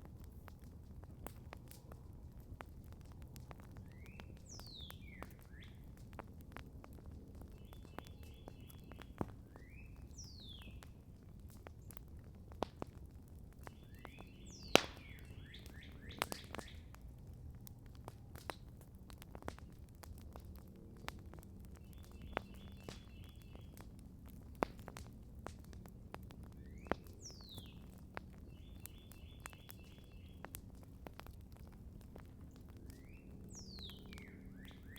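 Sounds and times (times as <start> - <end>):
campfire crackling and popping: 0.0 - 34.9
songbird whistling with trills: 33.0 - 34.9.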